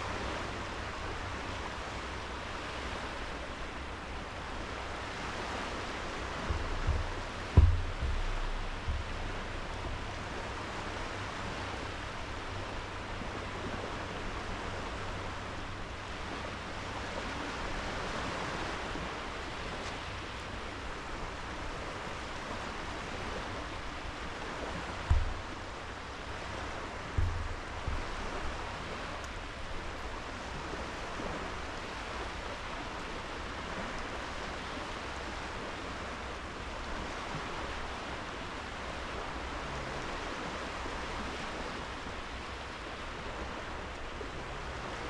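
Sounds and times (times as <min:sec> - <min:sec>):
waves washing onto beach: 0:00.0 - 0:45.0
low thumps: 0:06.0 - 0:13.2, 0:23.7 - 0:30.6.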